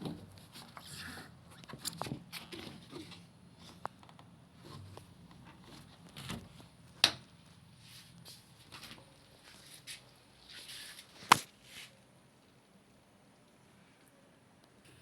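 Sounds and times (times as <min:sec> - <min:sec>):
clicks and rustles of handling: 0:00.0 - 0:07.3.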